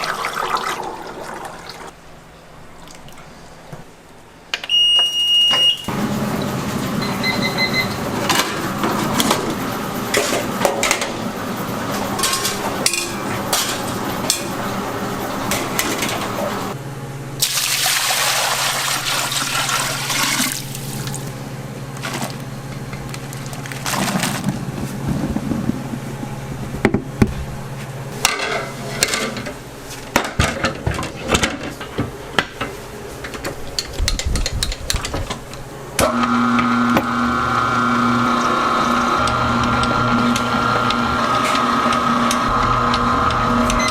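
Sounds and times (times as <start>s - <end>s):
water pouring: 0.0s - 2.0s, 17.4s - 21.3s
low machine hum: 5.8s - 17.6s, 18.4s - 30.9s, 35.3s - 43.9s.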